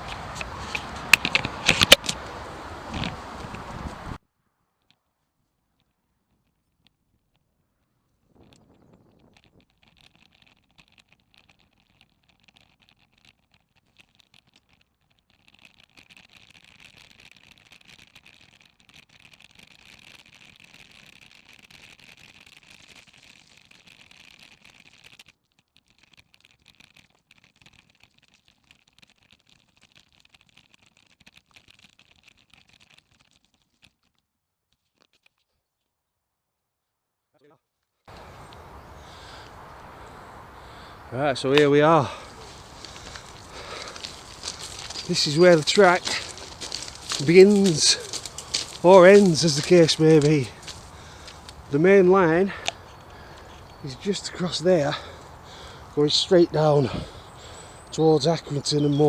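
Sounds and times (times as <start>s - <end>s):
bicycle ticking and crunching: 0.0s - 4.0s, 4.8s - 36.1s, 37.7s - 59.0s.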